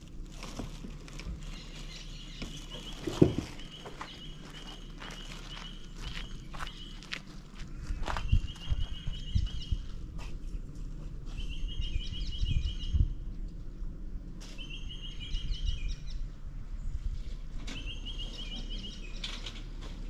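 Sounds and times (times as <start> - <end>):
low outdoor rumble: 0.0 - 20.0
bird singing repeated notes: 1.6 - 7.1, 8.2 - 9.9, 11.3 - 13.2, 14.6 - 16.3, 17.7 - 19.4.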